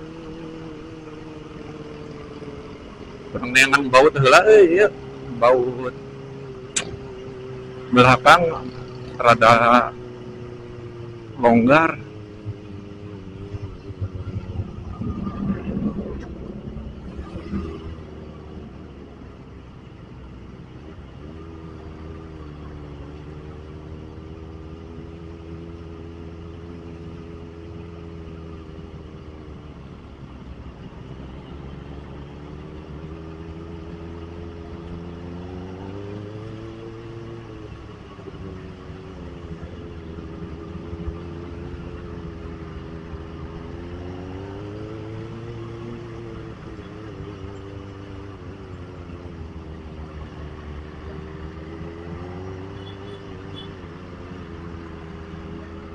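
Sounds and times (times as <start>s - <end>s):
motorcycle engine running: 4.9s - 20.6s.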